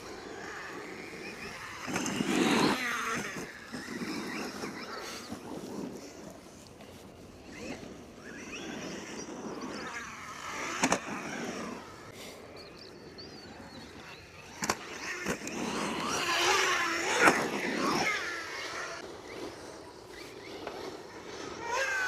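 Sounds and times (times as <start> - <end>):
rc truck electric motor whining: 0.0 - 12.1, 12.9 - 22.0
sharp knocks of landings: 1.4 - 5.4, 10.3 - 11.8, 14.6 - 19.0.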